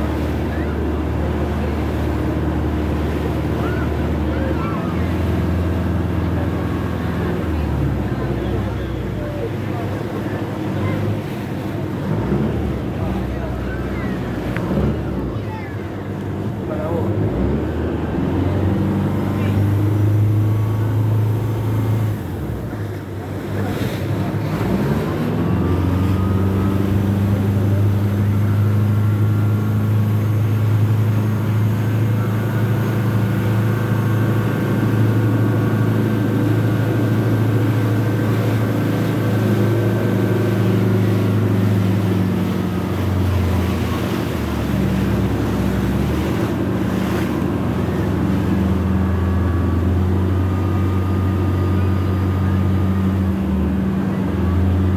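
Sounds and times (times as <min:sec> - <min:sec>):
boat engine running: 0:00.0 - 0:54.9.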